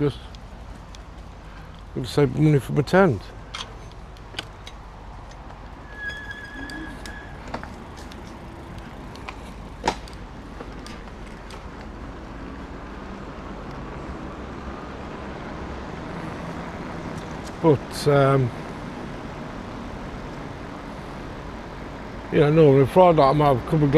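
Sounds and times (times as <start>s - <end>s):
road traffic rumbling: 0.0s - 23.9s
steady high tone: 5.8s - 7.8s.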